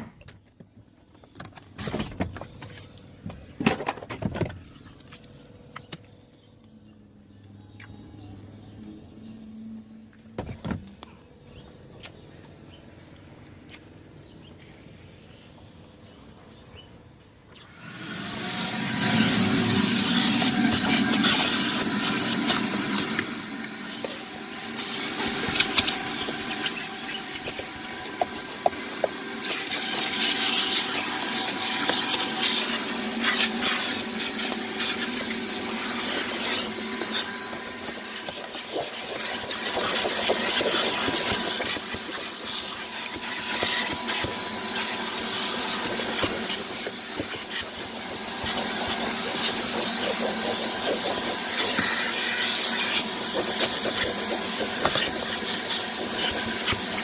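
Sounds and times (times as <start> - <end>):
motor-driven machine spraying water: 17.8 - 57.0.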